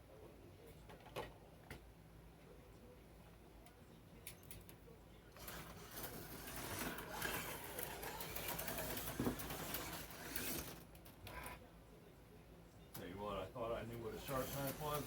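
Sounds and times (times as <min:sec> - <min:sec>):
slot car motor buzzing: 0:05.4 - 0:10.8.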